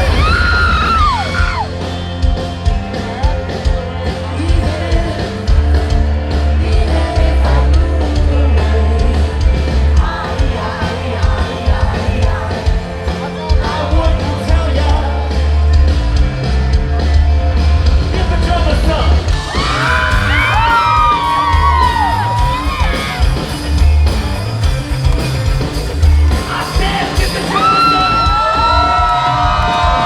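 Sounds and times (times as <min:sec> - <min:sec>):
live rock band: 0:00.0 - 0:30.0
lead singer's voice: 0:02.9 - 0:15.8, 0:26.3 - 0:30.0.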